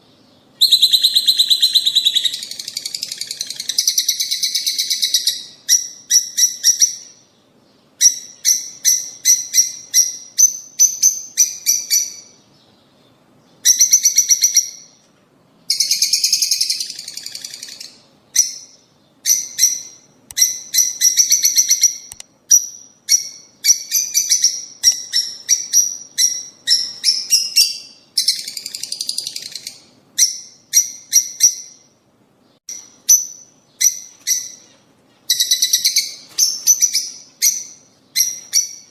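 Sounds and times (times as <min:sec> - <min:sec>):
lovebirds chirping shrilly: 0:00.3 - 0:07.2, 0:32.7 - 0:38.9.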